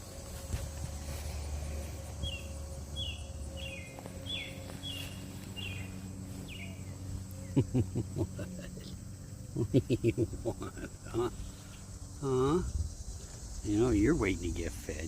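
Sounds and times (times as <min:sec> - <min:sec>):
low steady hum: 0:00.0 - 0:15.0
bird chirping: 0:02.0 - 0:12.6.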